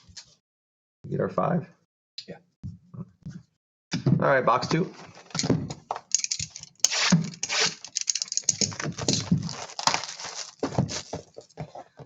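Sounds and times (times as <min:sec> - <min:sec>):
foil wrapping tearing and crinkling: 0:06.9 - 0:08.0, 0:08.6 - 0:11.4
cardboard handling: 0:08.7 - 0:12.0.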